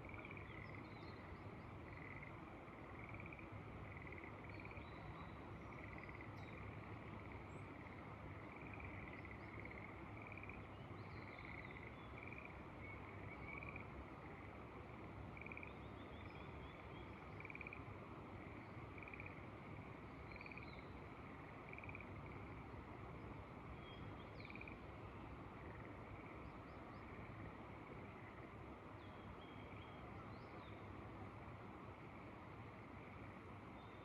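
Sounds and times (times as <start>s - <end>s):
frogs calling: 1.9s - 4.8s, 5.8s - 12.6s, 13.4s - 14.0s, 15.4s - 15.8s, 17.3s - 19.5s, 20.3s - 22.6s, 24.4s - 24.9s.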